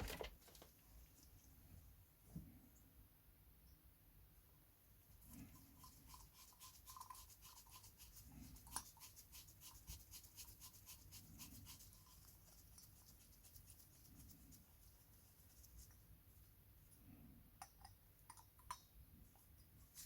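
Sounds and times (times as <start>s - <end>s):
hand tool ticking and scratching: 5.8s - 13.0s.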